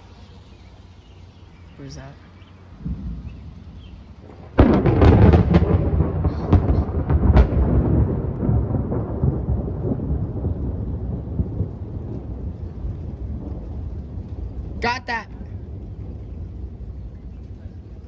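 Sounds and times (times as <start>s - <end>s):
deep thunder rumble: 0.0s - 18.0s
thunderclap crack: 2.8s - 18.0s.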